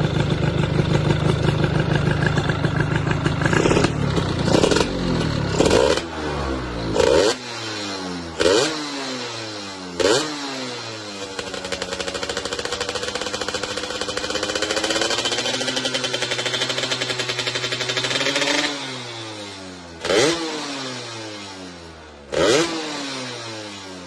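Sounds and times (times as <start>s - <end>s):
moped engine idling: 0.0s - 7.0s, 10.8s - 20.0s
two-stroke moped engine revving: 0.0s - 24.0s.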